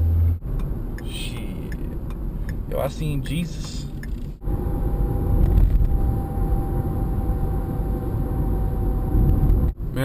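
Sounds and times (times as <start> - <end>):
car cabin rumble: 0.0 - 10.0.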